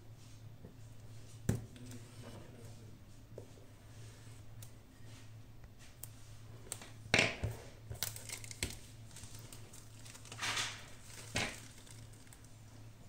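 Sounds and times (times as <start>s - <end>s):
packaging crinkling and rustling: 7.9s - 12.7s.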